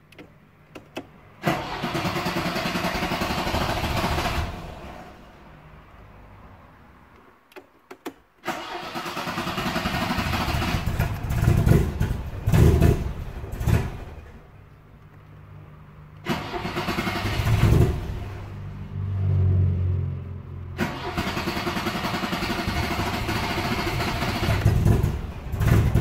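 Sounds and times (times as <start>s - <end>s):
car engine starting and revving: 1.4s - 5.5s, 8.4s - 14.4s, 16.2s - 26.0s.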